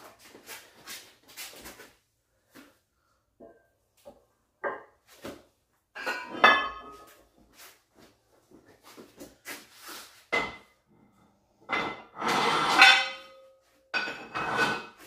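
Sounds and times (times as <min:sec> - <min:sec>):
metal scrape: 0:11.7 - 0:13.4, 0:14.0 - 0:15.0.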